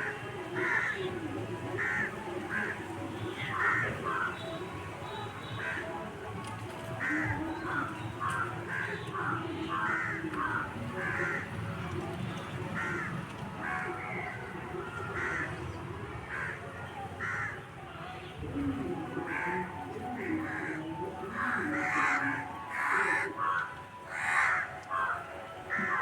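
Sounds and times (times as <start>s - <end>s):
crows cawing: 0.6s - 1.1s, 1.8s - 2.8s, 3.5s - 4.6s, 5.6s - 5.9s, 7.0s - 11.6s, 12.8s - 15.6s, 16.3s - 16.6s, 17.2s - 17.6s, 19.3s - 26.0s.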